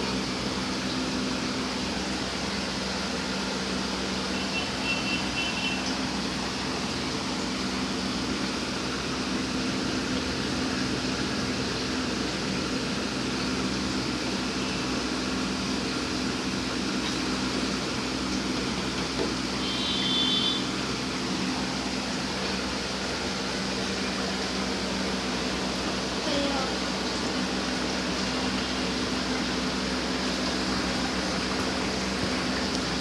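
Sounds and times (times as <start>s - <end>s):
mechanical hum with hiss: 0.0s - 33.0s.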